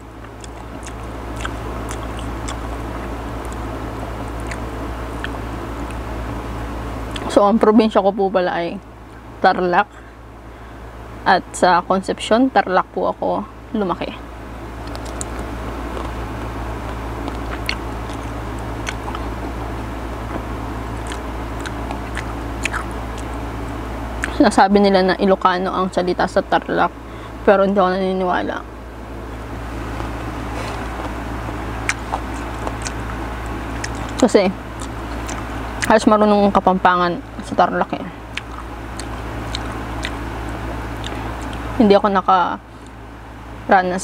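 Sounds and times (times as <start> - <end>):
chewing crunches: 0.0 - 6.0, 14.8 - 24.4, 29.8 - 36.0, 38.2 - 41.8
low hum: 0.0 - 44.0
wet mouth clicks: 0.2 - 3.7, 4.4 - 6.0, 14.8 - 16.2, 16.8 - 19.4, 21.0 - 24.4, 31.8 - 35.9, 38.3 - 41.7.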